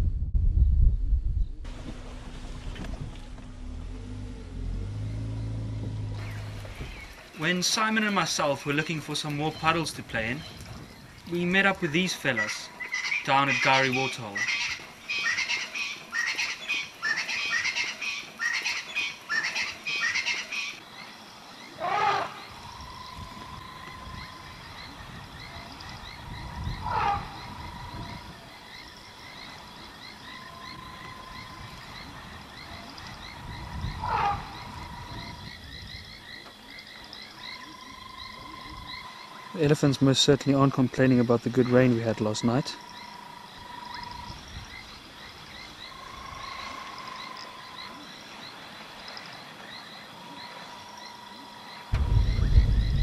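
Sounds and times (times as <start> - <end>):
frogs chirping: 4.6 - 53.0
large animal loud call: 21.8 - 24.6, 25.4 - 28.6, 33.6 - 35.5.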